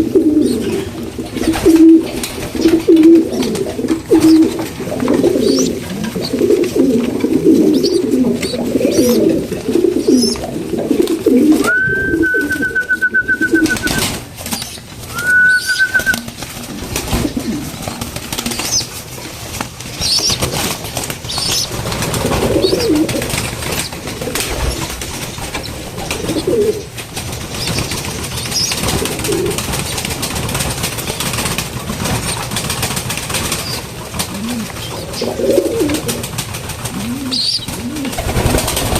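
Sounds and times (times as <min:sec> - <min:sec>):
pigeons cooing: 0:00.0 - 0:38.9
high whistling tone: 0:11.6 - 0:14.0, 0:15.1 - 0:16.3
soft taps and wing flutters: 0:13.3 - 0:38.9.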